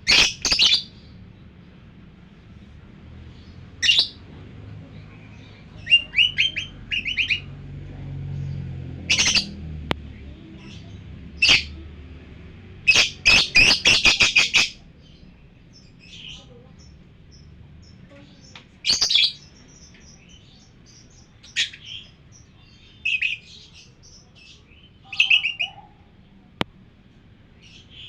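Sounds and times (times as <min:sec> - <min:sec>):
lovebirds chirping: 0:00.0 - 0:28.0
faint high twittering: 0:08.4 - 0:09.6.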